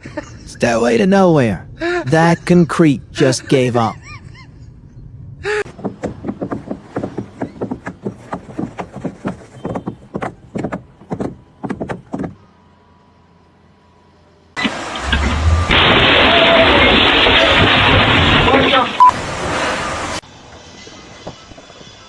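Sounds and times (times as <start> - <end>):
sharp knocks: 5.7 - 12.4
loud burst of noise: 14.6 - 22.0.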